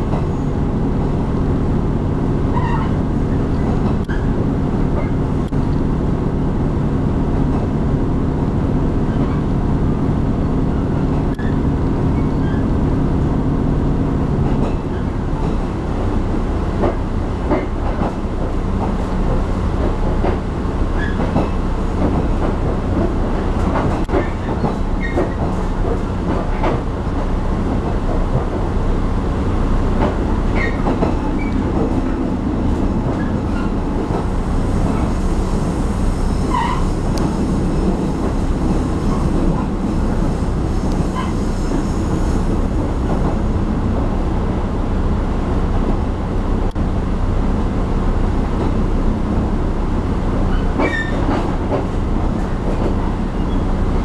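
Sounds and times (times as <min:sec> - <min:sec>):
train rumble and rattle: 0:00.0 - 0:54.0
brief squeaks: 0:02.5 - 0:04.4, 0:36.4 - 0:37.3, 0:50.5 - 0:51.4.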